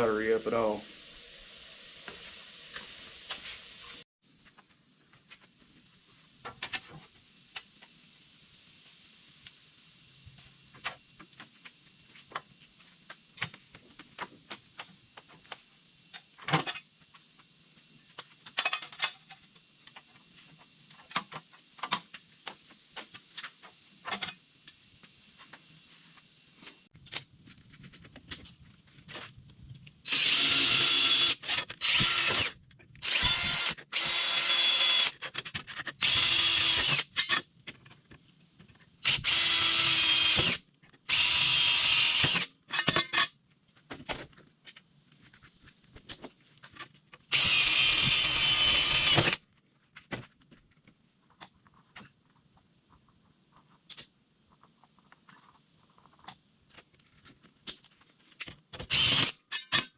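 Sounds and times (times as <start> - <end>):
power drill whining: 30.1 - 35.2, 36.0 - 37.0, 39.0 - 42.5, 47.3 - 49.4, 58.8 - 59.4.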